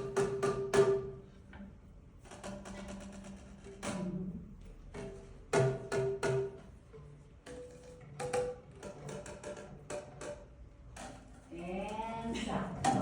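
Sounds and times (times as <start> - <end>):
plastic tubes struck: 0.0 - 1.2, 2.2 - 6.8, 7.4 - 11.5.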